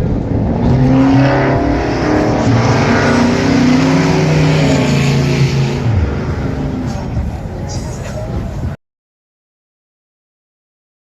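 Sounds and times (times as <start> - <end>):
vehicle engine running loudly: 0.0 - 8.8.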